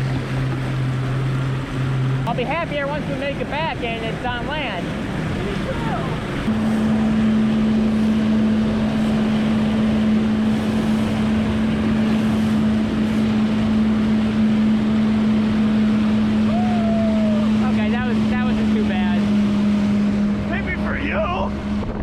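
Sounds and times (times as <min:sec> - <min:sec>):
jet ski engine droning: 0:00.0 - 0:22.0
water rushing past hull: 0:00.0 - 0:22.0
wind buffeting microphone: 0:00.0 - 0:22.0.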